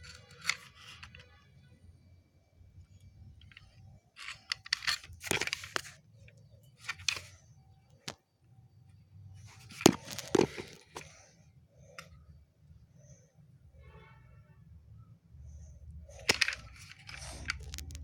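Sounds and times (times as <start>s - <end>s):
rustling and crackling: 3.0s - 7.4s, 9.4s - 11.3s, 16.0s - 18.0s.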